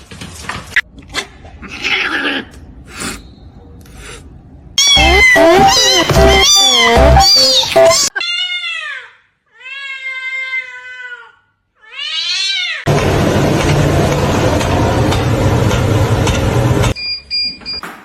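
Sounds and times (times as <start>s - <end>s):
cat meowing: 4.8s - 12.9s.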